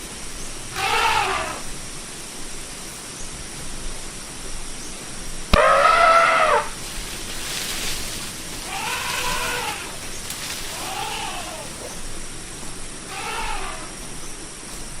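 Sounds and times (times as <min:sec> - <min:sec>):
elephant calling: 0:00.6 - 0:01.7, 0:05.5 - 0:06.8, 0:08.5 - 0:12.2, 0:13.0 - 0:14.3.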